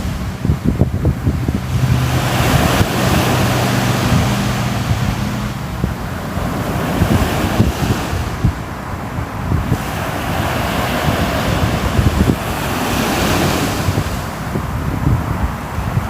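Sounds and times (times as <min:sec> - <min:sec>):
low rumble: 0:00.0 - 0:09.7
ocean waves breaking on shore: 0:00.0 - 0:16.0.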